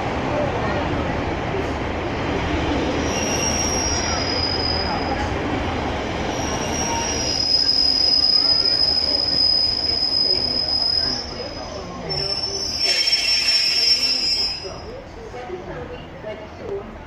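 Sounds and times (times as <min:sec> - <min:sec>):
wheels squealing on curved track: 0:03.0 - 0:05.1, 0:06.3 - 0:14.8.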